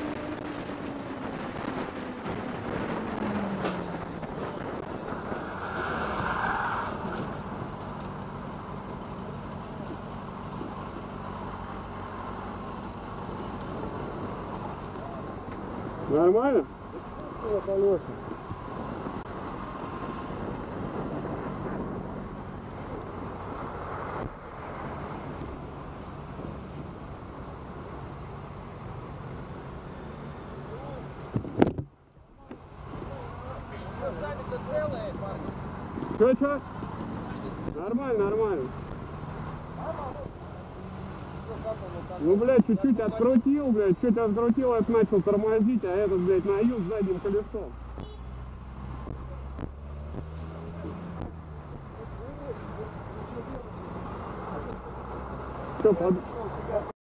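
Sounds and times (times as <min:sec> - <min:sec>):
wind buffeting microphone: 0:00.0 - 0:06.2, 0:18.0 - 0:25.6
road traffic noise: 0:00.0 - 0:57.0.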